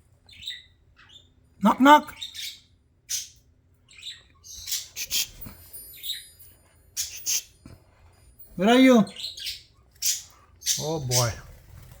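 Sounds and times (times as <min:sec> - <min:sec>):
budgerigars chirping: 0:00.3 - 0:01.4, 0:02.1 - 0:05.4, 0:09.0 - 0:11.5.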